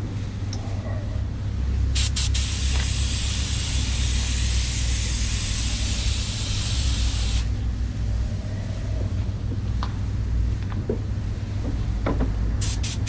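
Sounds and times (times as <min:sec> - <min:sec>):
steady low rumble: 0:00.0 - 0:13.0
paint spray gun hissing: 0:02.0 - 0:07.5, 0:12.6 - 0:13.0.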